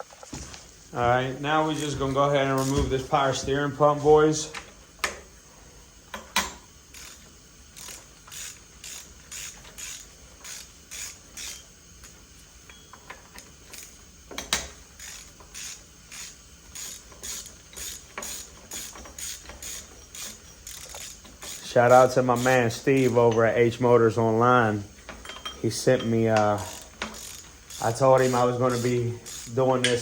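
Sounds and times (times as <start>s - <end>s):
ratchet wrench clicking: 2.6s - 2.8s, 6.1s - 23.4s, 25.2s - 30.0s.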